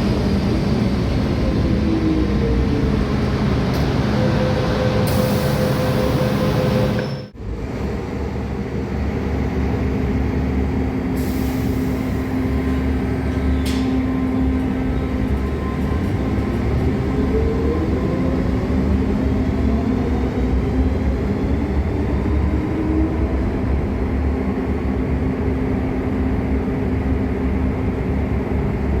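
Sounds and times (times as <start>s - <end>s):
train wheels rumbling on rail: 0.0s - 29.0s
train motor whine: 0.1s - 7.3s.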